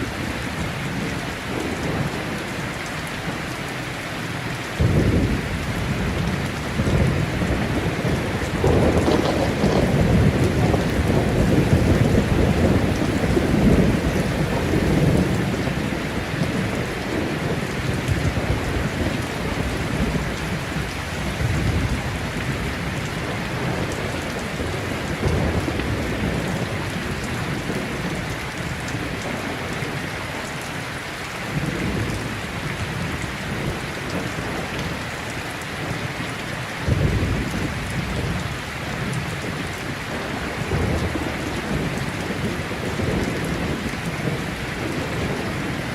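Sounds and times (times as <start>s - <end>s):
thunder rumbling: 0.0s - 3.6s, 4.6s - 30.7s, 36.8s - 45.9s
heavy rain falling: 0.0s - 45.9s
thunder clap: 4.8s - 22.7s.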